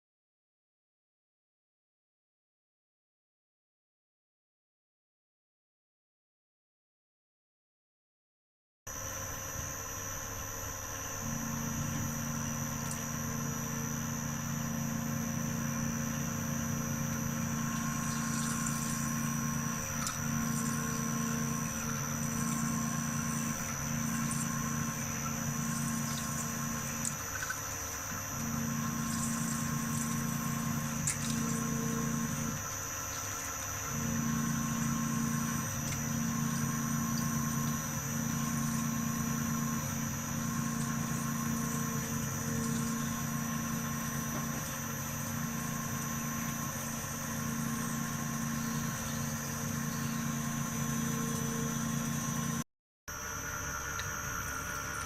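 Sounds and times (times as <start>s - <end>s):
milling machine whine: 8.9s - 55.0s
low hum: 11.1s - 52.6s.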